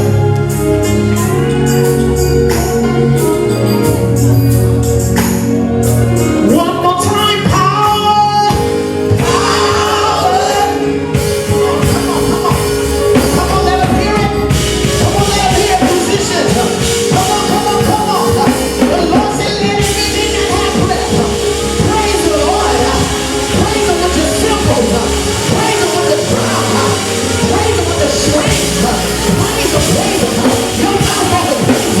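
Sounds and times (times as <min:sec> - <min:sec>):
steady drum beat: 0:08.5 - 0:32.0
sustained chords: 0:08.5 - 0:32.0
people singing: 0:09.1 - 0:32.0.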